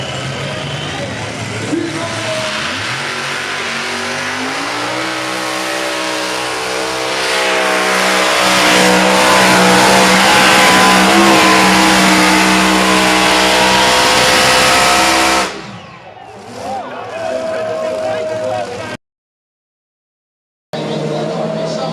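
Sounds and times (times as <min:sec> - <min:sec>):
race car engine revving: 0:00.0 - 0:16.7, 0:20.8 - 0:21.9.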